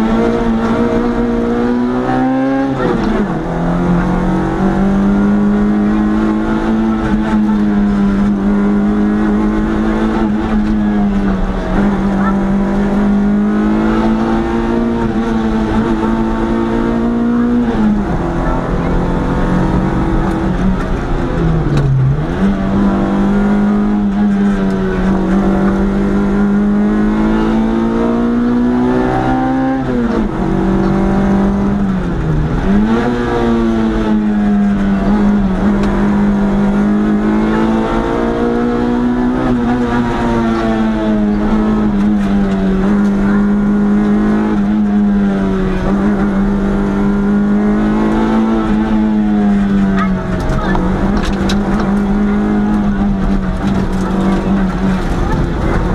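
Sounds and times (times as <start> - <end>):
rally car engine at high revs: 0.0 - 55.9.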